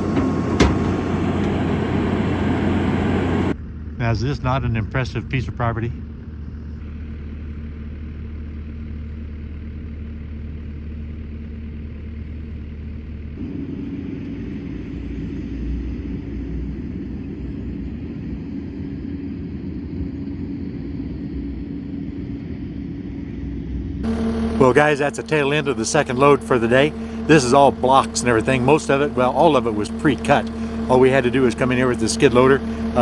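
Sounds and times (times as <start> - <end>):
engine humming: 0.0 - 33.0
steady high-pitched tone: 13.4 - 33.0.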